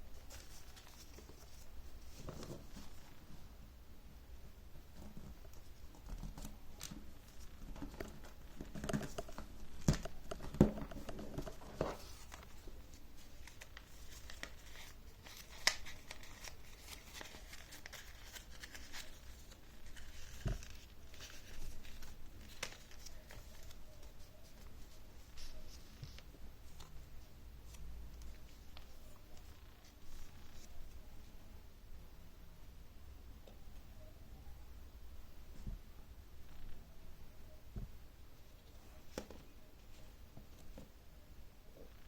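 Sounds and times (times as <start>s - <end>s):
paper rustling and crinkling: 0.1s - 3.2s, 5.5s - 27.1s
paper fold taps and snaps: 13.4s - 19.1s.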